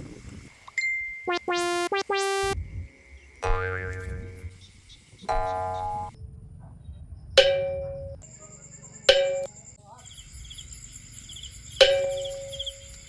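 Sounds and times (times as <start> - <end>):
high steady chirping: 1.2 - 6.2
ringing percussion hits: 5.3 - 6.2.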